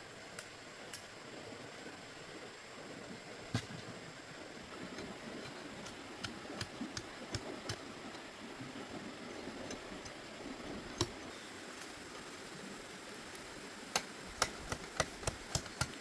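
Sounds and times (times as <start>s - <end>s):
steady background hiss: 0.0s - 16.0s
sharp taps and knocks: 13.9s - 16.0s.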